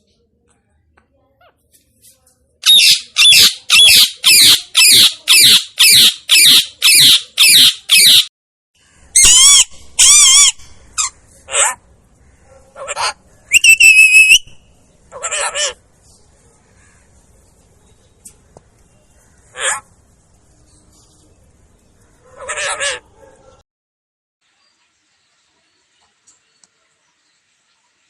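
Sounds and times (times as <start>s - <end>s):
parakeet screeching: 2.6s - 8.3s, 9.2s - 11.8s, 12.8s - 14.5s, 15.1s - 15.8s, 22.3s - 23.0s.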